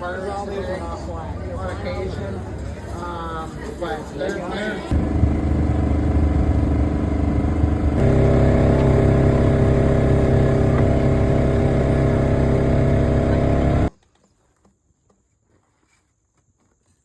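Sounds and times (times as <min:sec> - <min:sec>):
engine running steadily: 0:04.9 - 0:13.9.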